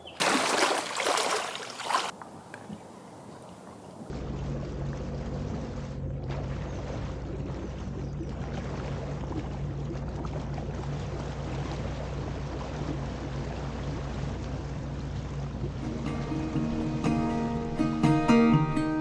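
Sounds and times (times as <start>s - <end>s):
rushing water: 0.0s - 5.7s, 6.4s - 19.0s
jet ski engine running: 3.8s - 16.1s.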